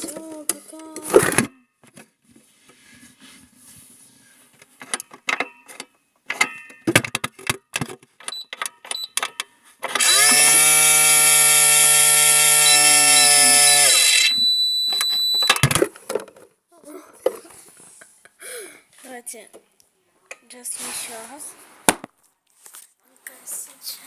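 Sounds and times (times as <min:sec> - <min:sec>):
plastic clicks and knocks: 0:06.3 - 0:09.5
toy buzzing hum: 0:10.0 - 0:14.5
thin high tone: 0:12.6 - 0:15.5.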